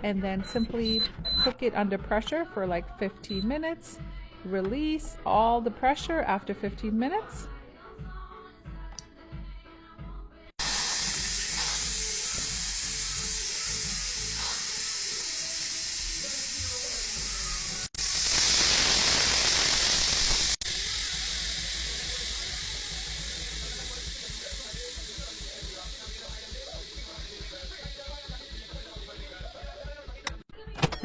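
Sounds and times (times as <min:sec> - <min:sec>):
steam valve hissing: 0:10.6 - 0:30.2.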